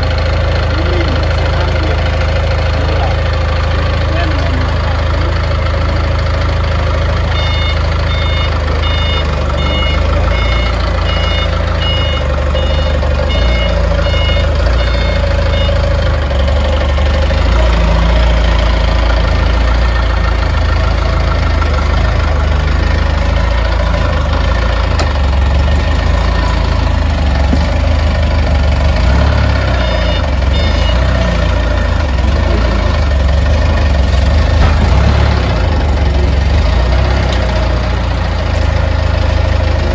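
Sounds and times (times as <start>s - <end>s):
diesel engine running: 0.0s - 39.9s
warning alarm beeping: 7.3s - 16.0s, 28.9s - 31.9s.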